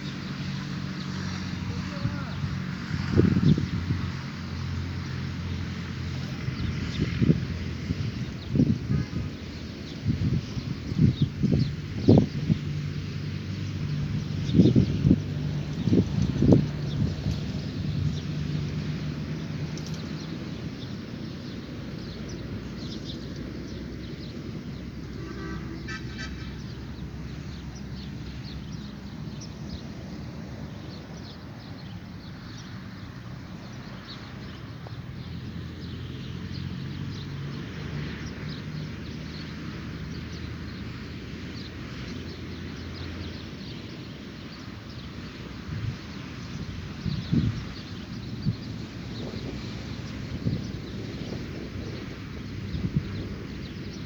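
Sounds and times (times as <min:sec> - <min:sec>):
small birds chirping: 0:00.0 - 0:54.0
short evenly spaced bird calls: 0:08.1 - 0:37.6.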